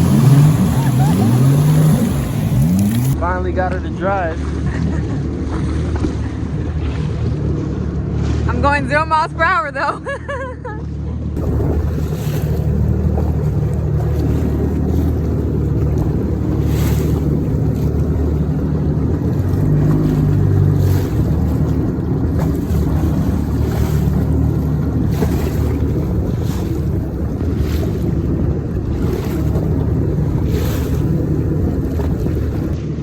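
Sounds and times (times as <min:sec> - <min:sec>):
jet ski engine droning: 0:00.0 - 0:33.0
wind noise on microphone: 0:11.4 - 0:33.0.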